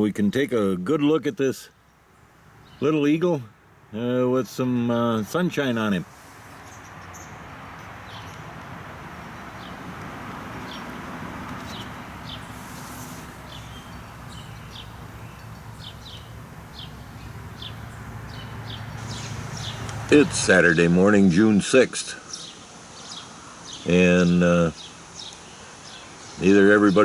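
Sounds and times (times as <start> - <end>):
outdoor background hiss: 0.0 - 27.0
birds chirping: 1.7 - 20.9.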